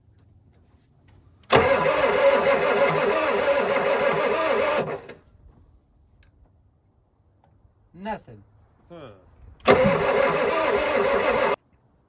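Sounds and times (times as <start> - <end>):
engine cranking on starter: 1.4 - 5.3, 9.6 - 11.6.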